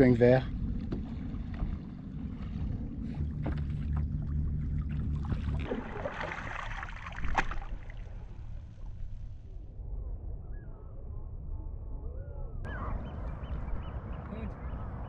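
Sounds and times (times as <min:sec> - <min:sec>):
water splashing: 0:00.0 - 0:09.4
low pulsing rumble: 0:00.0 - 0:15.0.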